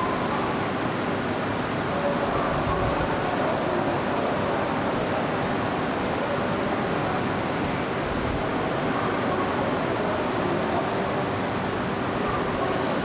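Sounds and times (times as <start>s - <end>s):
train rushing hum: 0.0s - 13.0s.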